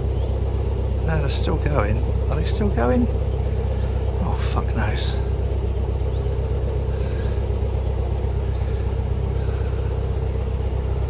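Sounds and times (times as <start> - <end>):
boat diesel engine rumbling: 0.0 - 11.0.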